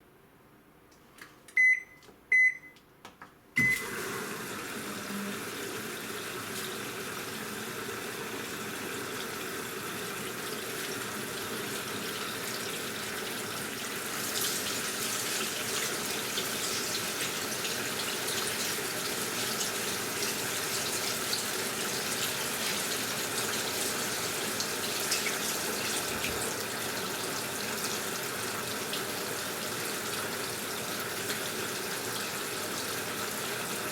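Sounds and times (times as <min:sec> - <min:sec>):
washing machine beeping: 0:01.5 - 0:02.8, 0:03.6 - 0:05.6, 0:11.6 - 0:13.1
water rushing into tub: 0:03.6 - 0:33.9.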